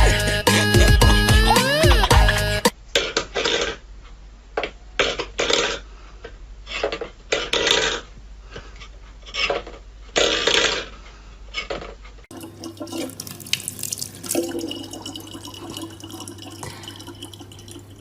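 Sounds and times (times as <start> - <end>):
water running: 12.3 - 18.0
water splashing: 12.3 - 18.0.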